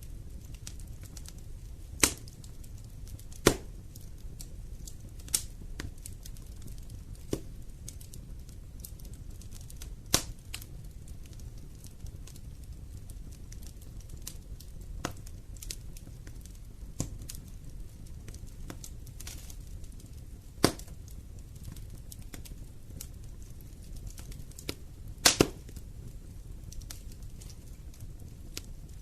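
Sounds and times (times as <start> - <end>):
burning wood popping: 0.0 - 29.0
fire rumble and crackles: 0.0 - 29.0.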